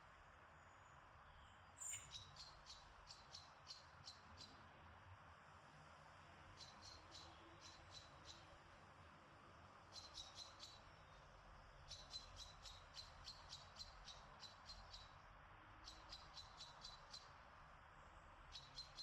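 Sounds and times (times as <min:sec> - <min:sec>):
bird chirping: 0:00.6 - 0:04.6, 0:06.6 - 0:08.5, 0:09.9 - 0:15.2, 0:15.8 - 0:17.4, 0:18.5 - 0:19.0.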